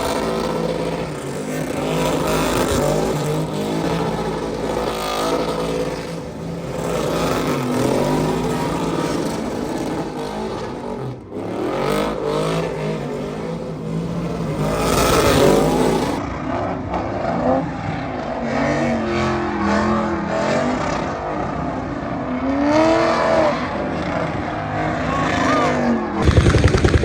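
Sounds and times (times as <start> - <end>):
truck engine revving hard: 0.0 - 16.2, 22.4 - 27.0
constant rushing noise: 25.1 - 27.0.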